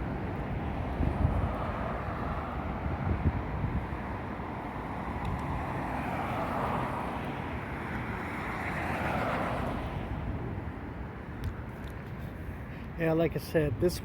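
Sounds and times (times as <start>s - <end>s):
wind buffeting microphone: 0.0s - 5.9s
traffic going by: 0.0s - 14.0s.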